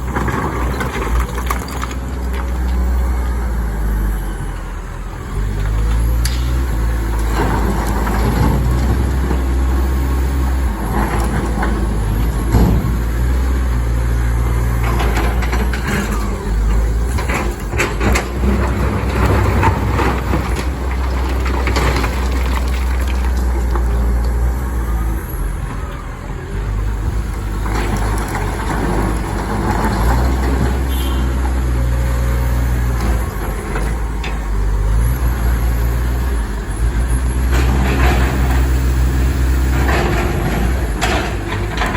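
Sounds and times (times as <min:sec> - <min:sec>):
excavator diesel engine: 0:00.0 - 0:41.9
rock clattering and knocking: 0:17.0 - 0:24.4.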